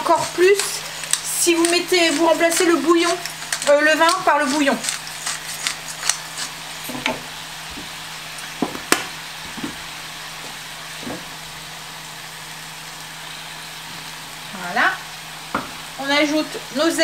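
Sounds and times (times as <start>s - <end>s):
pepper mill clicking: 0.0s - 6.6s
food sizzling in a frying pan: 0.0s - 17.0s.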